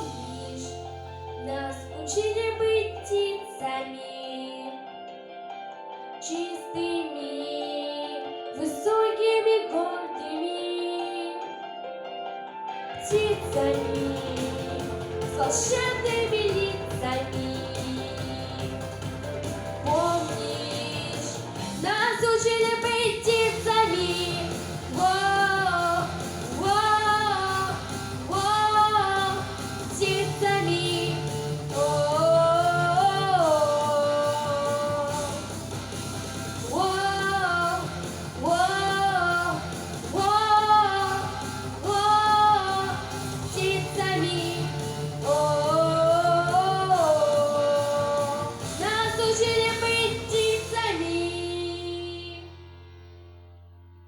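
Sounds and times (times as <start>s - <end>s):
girl singing: 0.0s - 5.0s, 6.2s - 11.6s, 13.0s - 35.5s, 36.7s - 52.5s
instrumental accompaniment: 13.0s - 50.8s.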